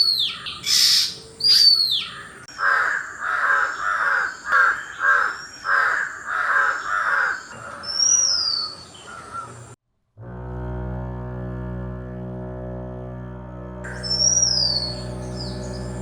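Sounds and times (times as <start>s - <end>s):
crow cawing: 0.2s - 9.6s
whistled bird note: 13.9s - 16.0s.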